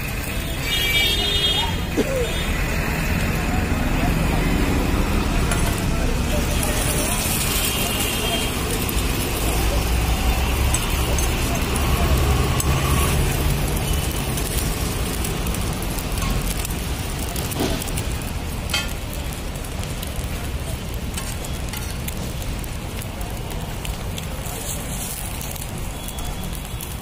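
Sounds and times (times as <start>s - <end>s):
flatbread sizzling in oil: 0.0s - 27.0s.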